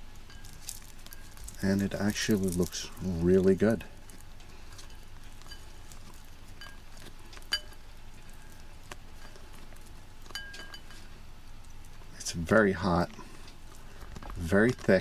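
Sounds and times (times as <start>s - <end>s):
low steady hiss: 0.0s - 15.0s
utensil clinking against bowl: 0.2s - 3.1s, 3.9s - 8.6s, 10.2s - 11.1s.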